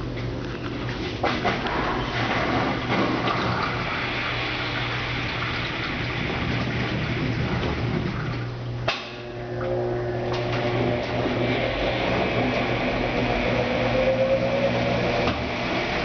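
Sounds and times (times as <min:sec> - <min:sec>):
washing machine drain pump humming: 0:00.0 - 0:16.0
water rushing and gurgling: 0:01.7 - 0:08.5.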